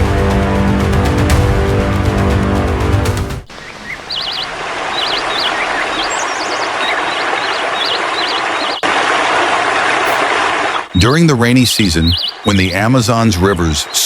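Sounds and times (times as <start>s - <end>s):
music: 0.0s - 3.5s
birds wavering chirps: 3.4s - 14.0s
steady hiss: 3.4s - 14.0s.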